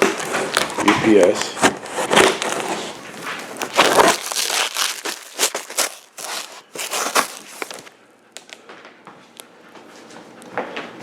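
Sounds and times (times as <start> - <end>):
packaging crinkling and rustling: 0.0 - 8.7.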